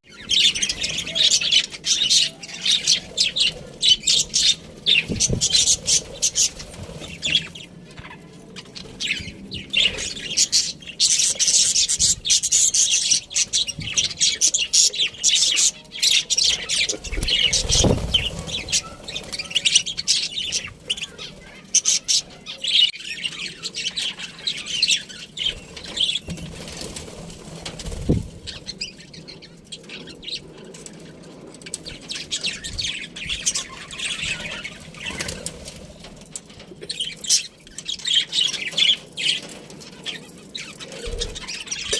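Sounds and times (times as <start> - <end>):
budgerigars chirping: 0.1 - 26.3, 31.9 - 35.6.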